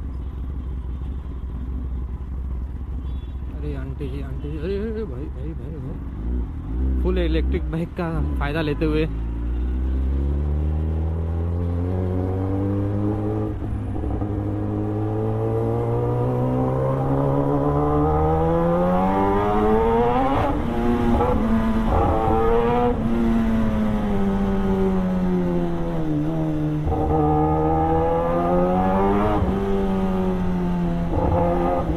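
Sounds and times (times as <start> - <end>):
motorcycle engine accelerating: 9.1 - 31.9.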